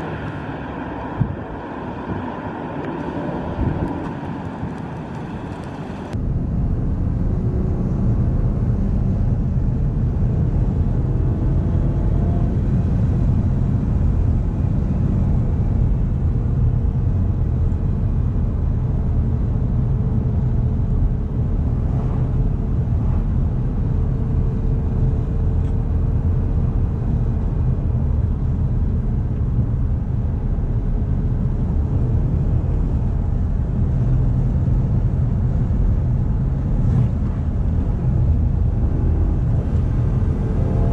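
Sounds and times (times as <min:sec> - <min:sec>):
road noise: 0:00.0 - 0:40.9
car engine running: 0:30.5 - 0:40.9.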